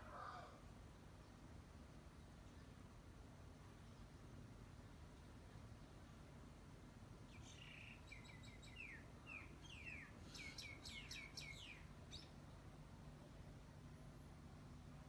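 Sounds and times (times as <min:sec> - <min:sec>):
bird singing faintly: 0:07.3 - 0:12.5.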